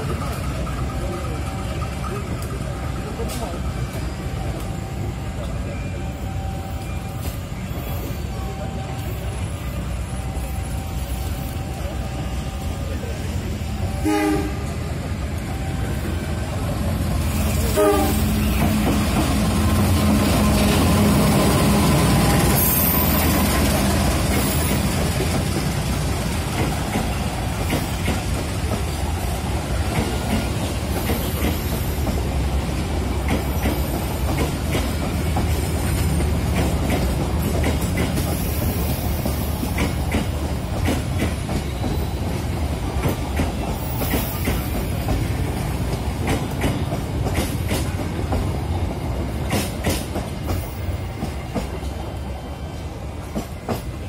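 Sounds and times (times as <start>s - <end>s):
train wheels rumbling on rails: 0.0s - 54.0s
wheels clacking over rail joints: 17.3s - 52.0s.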